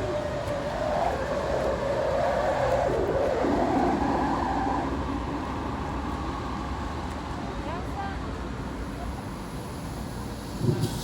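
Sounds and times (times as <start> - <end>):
liferaft inflating with rushing gas: 9.3 - 11.0.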